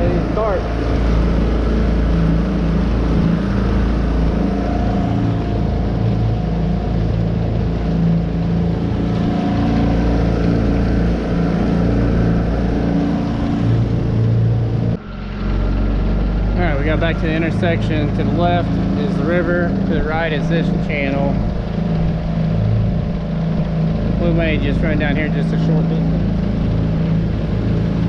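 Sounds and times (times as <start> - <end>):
outboard motor running: 0.0 - 28.0.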